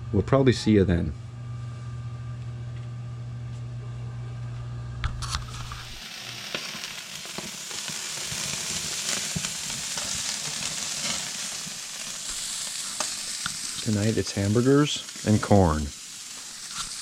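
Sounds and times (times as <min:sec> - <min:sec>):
steady low hum: 0:00.0 - 0:06.1, 0:08.4 - 0:16.7
patties sizzling in a pan: 0:05.2 - 0:17.0.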